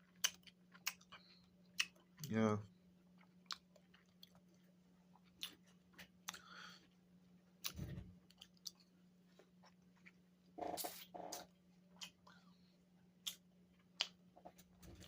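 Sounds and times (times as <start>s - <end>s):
person biting and chewing: 0.0s - 2.3s.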